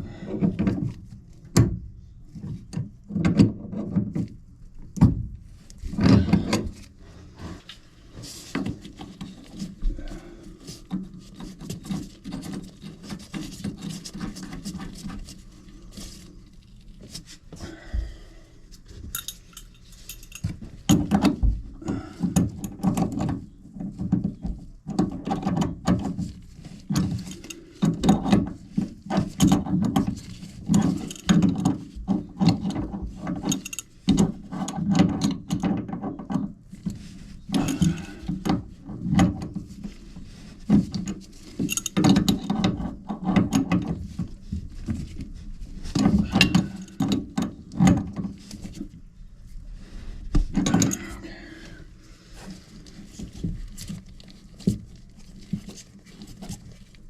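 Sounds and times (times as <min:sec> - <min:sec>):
tools clicking and rattling: 0:19.1 - 0:36.9, 0:37.5 - 0:39.5, 0:40.7 - 0:44.4, 0:46.0 - 0:48.9, 0:50.6 - 0:51.2.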